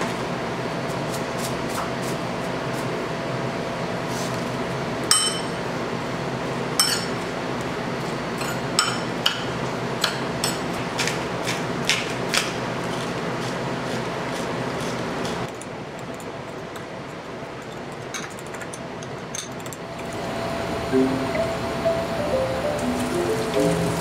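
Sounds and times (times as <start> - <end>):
dishes and utensils clinking: 6.8 - 7.2
steady hum: 20.0 - 24.0.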